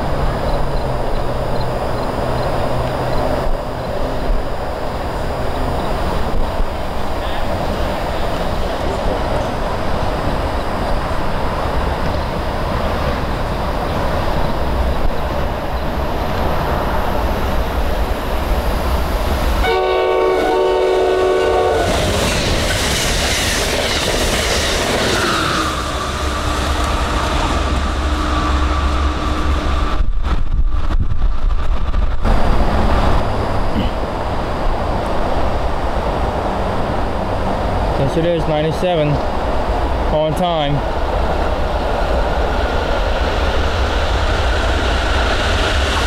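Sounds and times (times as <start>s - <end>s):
passenger train passing: 0.0s - 46.0s
locomotive horn chord: 19.6s - 21.9s.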